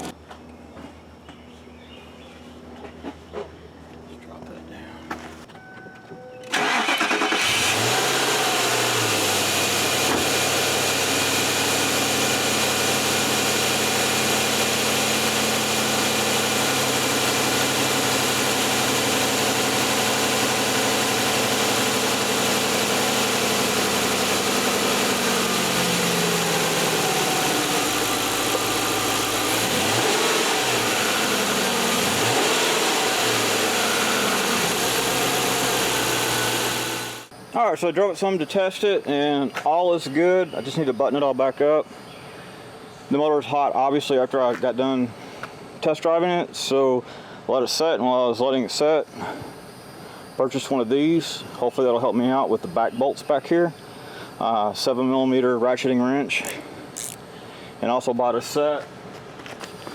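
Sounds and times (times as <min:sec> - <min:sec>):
car engine cranking and starting: 0:06.4 - 0:37.3, 0:56.4 - 0:57.2
car engine idling: 0:06.5 - 0:37.3.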